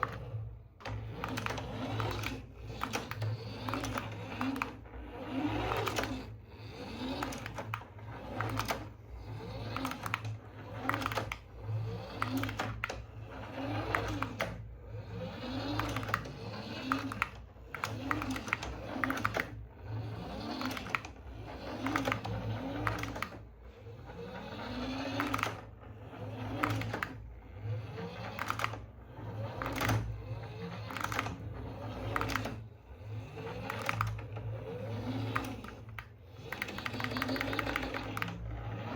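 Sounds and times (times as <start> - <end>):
toy electric motor whirring: 0.0 - 38.9
sharp clicks and plastic knocks: 7.2 - 9.0, 9.6 - 13.1, 15.6 - 19.6, 25.0 - 25.7, 26.5 - 27.2, 28.2 - 28.9, 30.8 - 32.6, 33.5 - 34.4, 35.1 - 38.9.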